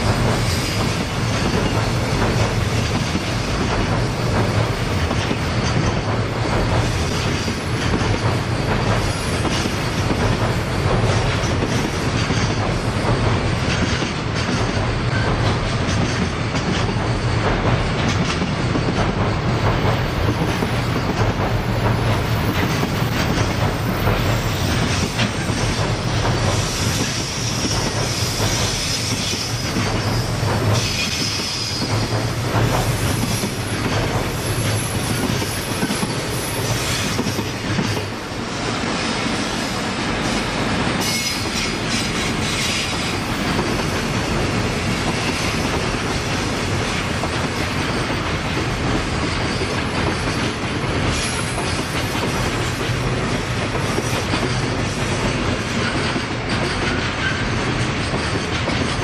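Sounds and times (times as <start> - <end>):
rail joints clicking: 0.0 - 59.0
steel wheels rumbling on rails: 0.0 - 59.0
high wheel squeal: 41.0 - 43.8.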